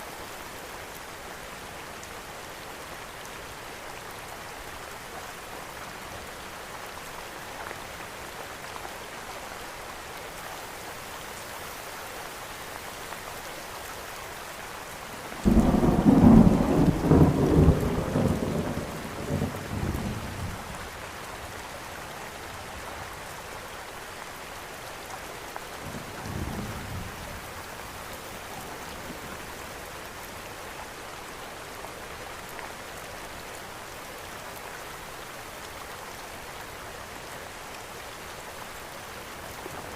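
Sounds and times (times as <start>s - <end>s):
steady rain falling: 0.0s - 39.9s
thunder clap rumbling: 15.5s - 20.0s
distant thunder rumble: 15.5s - 20.4s.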